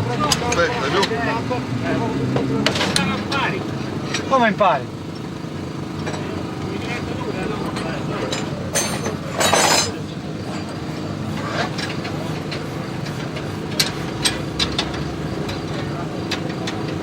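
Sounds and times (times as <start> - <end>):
low mechanical hum: 0.0 - 17.0
sharp metallic clinks: 7.4 - 17.0.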